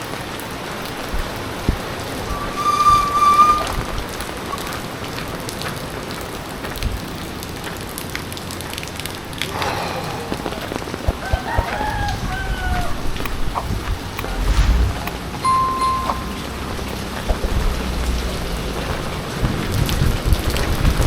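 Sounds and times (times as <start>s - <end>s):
heavy rain pattering: 0.0s - 2.6s, 3.7s - 14.4s, 16.4s - 21.0s
rooster crowing: 11.2s - 13.0s.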